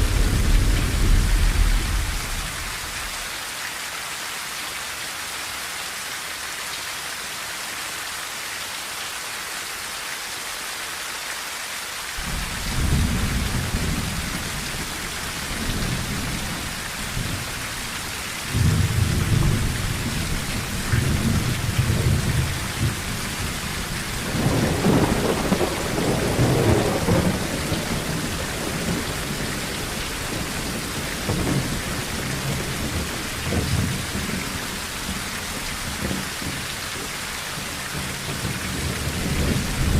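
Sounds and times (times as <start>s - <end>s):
thunder rumbling: 0.0s - 3.2s, 12.2s - 36.6s, 38.0s - 39.9s
rain on a tin roof: 0.0s - 39.9s.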